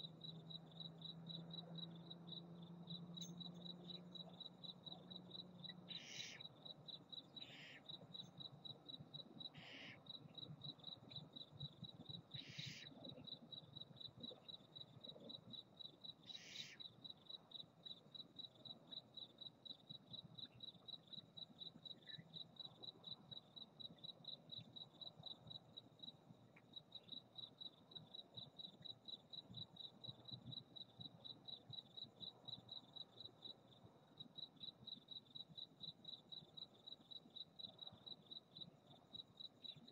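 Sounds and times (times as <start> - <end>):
crickets chirping: 0.0 - 39.9
owl raspy hissing calls: 5.9 - 6.4, 9.6 - 10.0, 12.4 - 12.9, 16.4 - 16.8.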